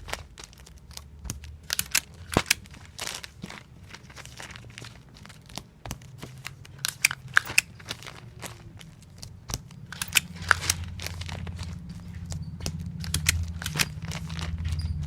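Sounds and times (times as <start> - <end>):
paper crinkling: 0.0 - 15.0
steady low hum: 0.0 - 15.0
sticky tape squeaking off roll: 5.4 - 15.0.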